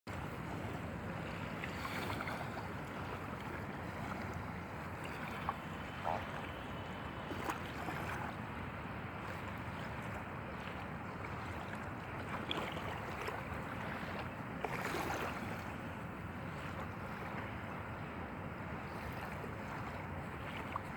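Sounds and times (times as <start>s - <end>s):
open water washing: 0.1s - 20.9s
faint knocks or splashes: 9.2s - 15.7s.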